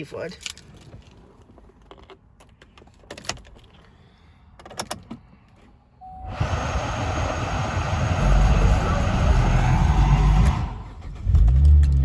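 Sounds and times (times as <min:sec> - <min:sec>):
short tone: 0:06.0 - 0:06.4
car engine cranking and starting: 0:06.2 - 0:12.0.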